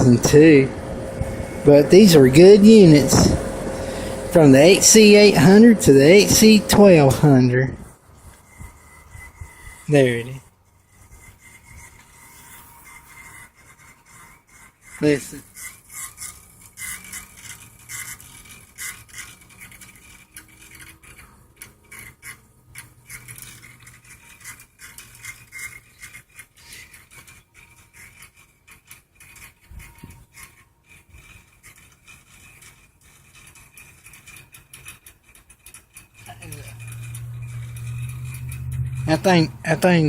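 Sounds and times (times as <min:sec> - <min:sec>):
low hum: 0:00.0 - 0:09.5, 0:36.3 - 0:40.0
scratchy hiss from heat pump: 0:00.0 - 0:40.0.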